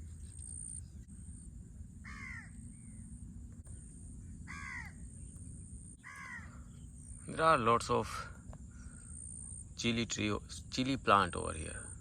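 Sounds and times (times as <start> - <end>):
low background rumble: 0.0 - 12.0
crow cawing: 2.0 - 2.6, 4.5 - 5.0, 6.0 - 6.8.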